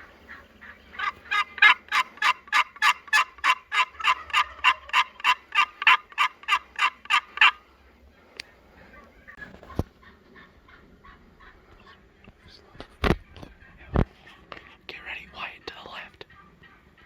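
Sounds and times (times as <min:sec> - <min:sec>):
turkey yelping: 0:00.2 - 0:07.6, 0:16.3 - 0:17.0.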